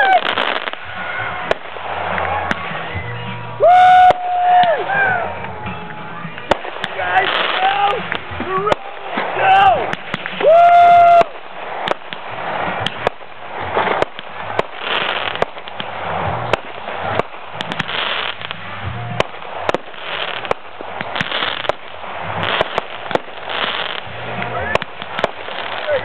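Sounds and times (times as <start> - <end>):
fireworks bangs and crackles: 0.0 - 26.0
fireworks hiss: 6.2 - 26.0.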